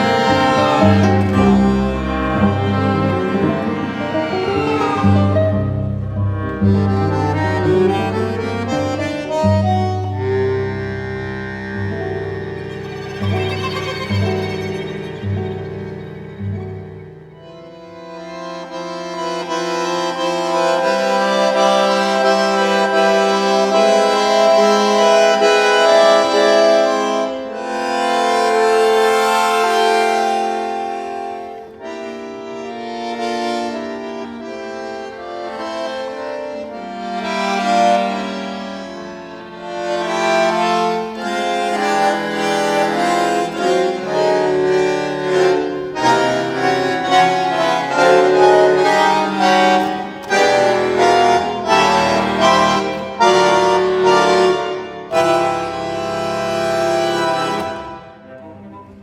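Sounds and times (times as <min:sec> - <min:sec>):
bandoneon playing chords: 0:00.0 - 0:59.0.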